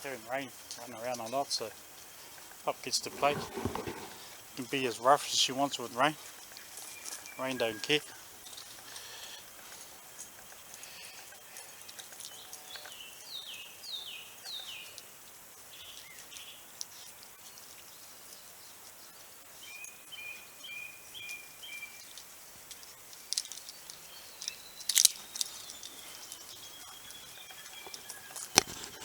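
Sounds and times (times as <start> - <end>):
birds calling: 0.0 - 16.7, 23.4 - 29.0.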